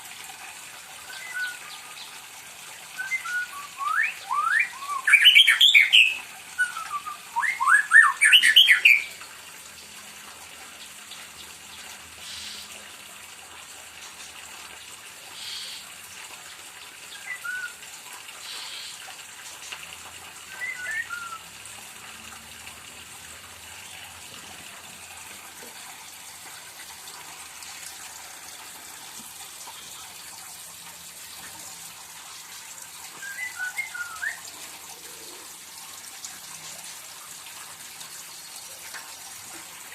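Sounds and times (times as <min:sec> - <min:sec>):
faint steady hiss: 0:00.0 - 0:39.9
bird singing rising whistles: 0:01.1 - 0:01.9, 0:03.0 - 0:09.1, 0:17.2 - 0:17.8, 0:20.5 - 0:21.5, 0:33.2 - 0:34.5
bird chirps: 0:03.0 - 0:09.1, 0:20.5 - 0:21.4, 0:33.2 - 0:34.4.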